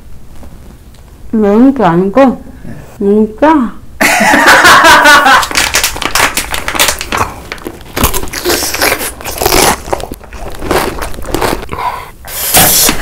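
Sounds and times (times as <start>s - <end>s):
food crunching being eaten: 5.4s - 13.0s.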